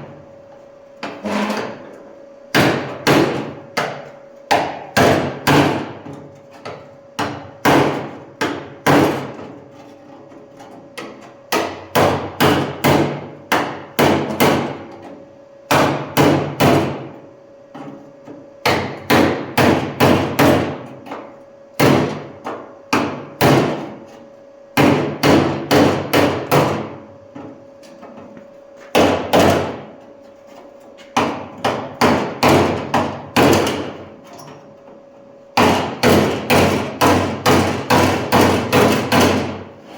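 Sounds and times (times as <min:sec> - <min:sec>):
hammer blows on sheet steel: 0:02.5 - 0:06.0, 0:07.2 - 0:09.4, 0:11.5 - 0:14.8, 0:35.6 - 0:39.6.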